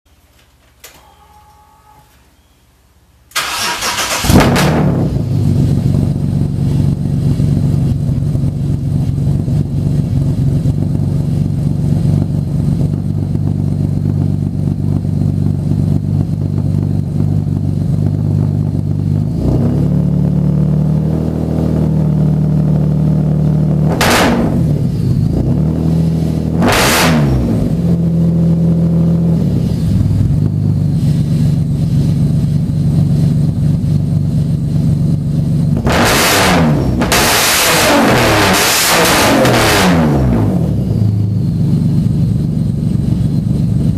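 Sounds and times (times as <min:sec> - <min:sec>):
car engine starting and idling: 0:03.3 - 0:43.9
engine revving: 0:03.4 - 0:05.5, 0:19.1 - 0:30.2, 0:35.7 - 0:41.3.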